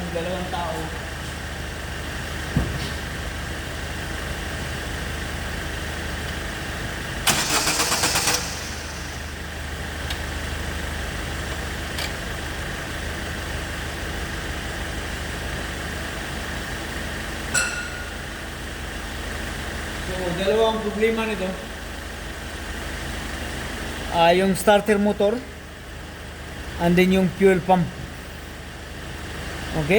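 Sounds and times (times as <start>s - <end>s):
engine idling: 0.0s - 29.9s
starter motor cranking: 7.2s - 9.3s.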